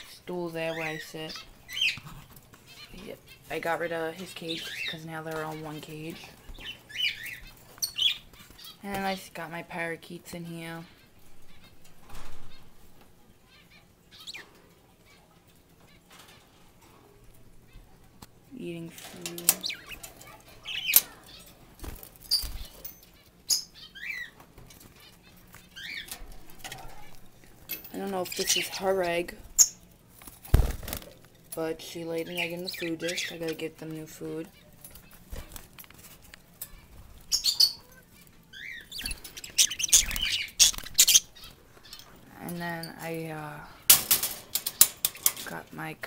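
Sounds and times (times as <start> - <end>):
parakeets chirping: 0.0 - 44.0
birds rustling and knocking in cage: 11.2 - 13.1, 15.7 - 23.3, 24.4 - 31.6, 34.8 - 38.4, 43.8 - 45.6.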